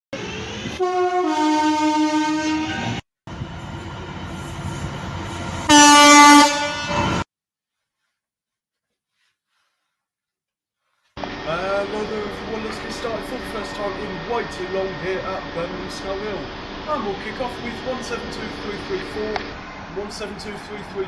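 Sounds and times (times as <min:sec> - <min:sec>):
train running noise: 0:00.2 - 0:01.3, 0:02.7 - 0:07.2, 0:11.2 - 0:21.0
loud train horn blast: 0:00.2 - 0:03.0, 0:05.7 - 0:07.2
two-tone train horn: 0:00.2 - 0:03.0, 0:05.7 - 0:07.2.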